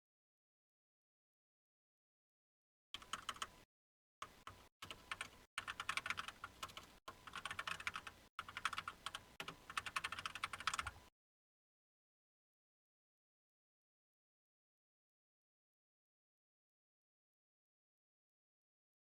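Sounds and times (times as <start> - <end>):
typing on computer keyboard: 3.0 - 3.5, 4.2 - 11.0.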